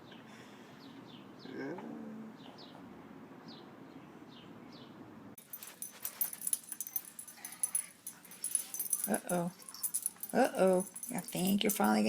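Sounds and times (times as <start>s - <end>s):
clattering jingling clicks: 5.4s - 12.0s.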